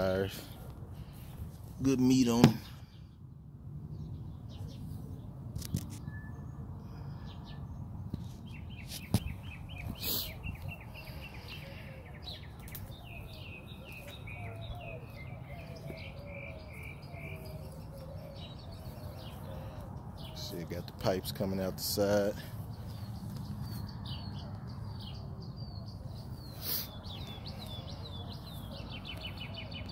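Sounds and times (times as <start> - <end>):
small birds chirping: 0.0 - 29.9.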